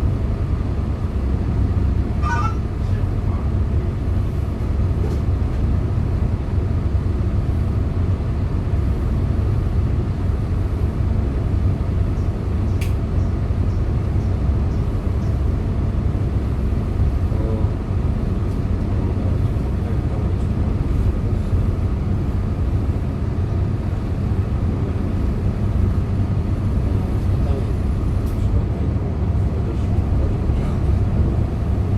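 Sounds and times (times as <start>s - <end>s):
bus engine rumbling: 0.0s - 31.9s
sharp click: 12.8s - 13.0s.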